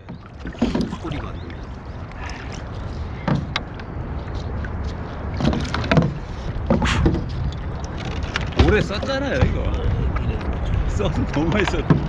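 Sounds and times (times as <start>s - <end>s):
paddle strokes splashing water: 0.0s - 12.0s.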